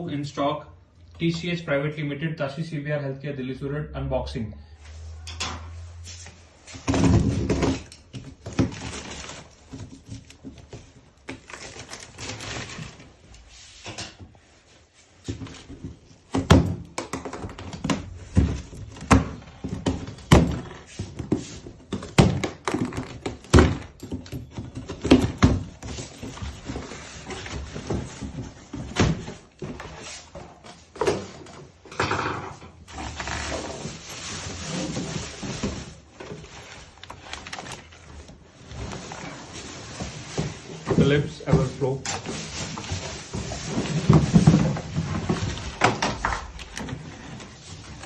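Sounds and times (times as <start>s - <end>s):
cardboard rustling and scraping: 5.8s - 16.4s, 17.3s - 31.8s, 32.8s - 48.0s
cardboard thumps and knocks: 6.8s - 11.4s, 15.2s - 30.0s, 42.4s - 47.5s.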